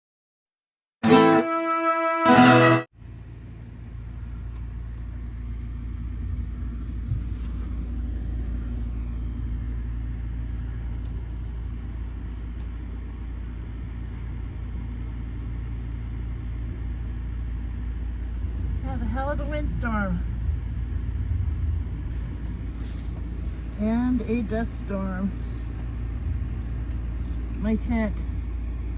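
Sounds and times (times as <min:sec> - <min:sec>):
wind gusts buffeting microphone: 0:17.9 - 0:28.9.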